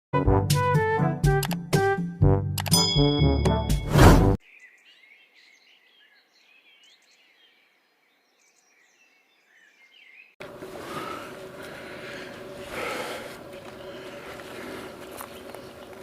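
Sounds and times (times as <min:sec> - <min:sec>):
music jingle: 0:02.6 - 0:04.4
faint high bird chirps: 0:04.4 - 0:10.4.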